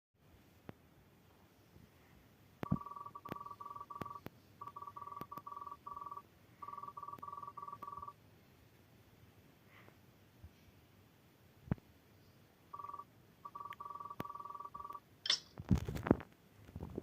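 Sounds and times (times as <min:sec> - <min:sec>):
rapid electronic beeping: 0:02.6 - 0:08.2, 0:12.8 - 0:15.0.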